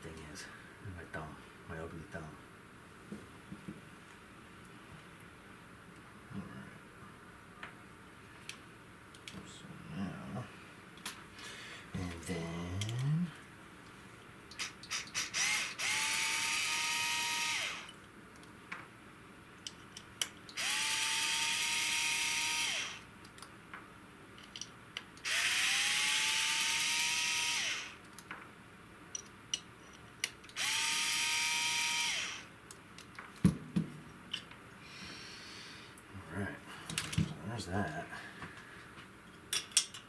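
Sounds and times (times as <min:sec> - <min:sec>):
electric screwdriver whining: 0:14.6 - 0:17.9, 0:20.6 - 0:23.1, 0:25.2 - 0:28.0, 0:30.6 - 0:32.5
clicks of screws being handled: 0:24.4 - 0:25.3.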